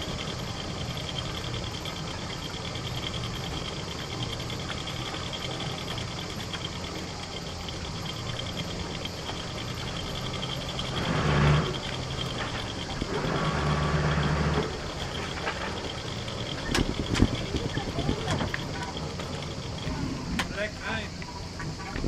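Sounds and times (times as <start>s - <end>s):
engine throttle bursts: 0.0s - 21.8s
diesel engine idling: 0.0s - 22.0s.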